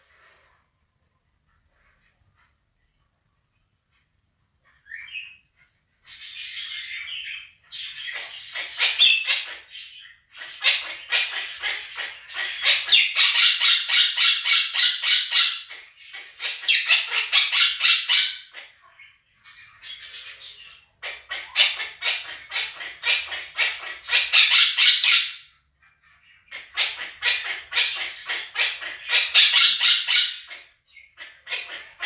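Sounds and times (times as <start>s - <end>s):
parakeets screeching: 6.2s - 18.7s, 19.5s - 32.0s.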